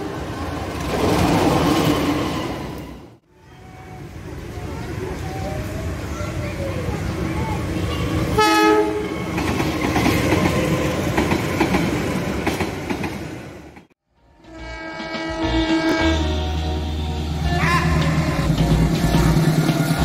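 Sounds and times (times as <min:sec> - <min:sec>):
locomotive horn blast: 0:08.4 - 0:09.1, 0:14.4 - 0:19.6
background music: 0:14.1 - 0:20.0.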